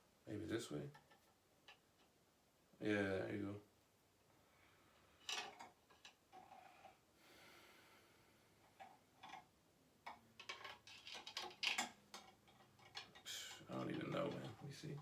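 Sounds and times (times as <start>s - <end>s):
faint clicks and taps: 8.6s - 15.0s.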